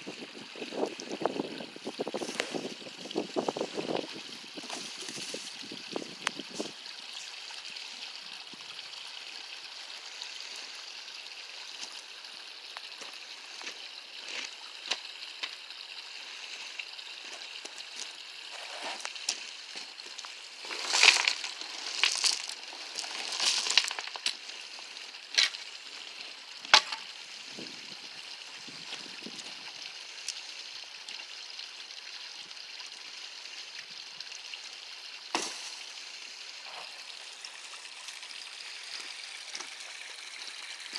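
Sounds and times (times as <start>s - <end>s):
water trickling in stream: 0.0s - 40.9s
shovel scraping gravel and rock: 18.5s - 19.4s, 20.6s - 24.3s.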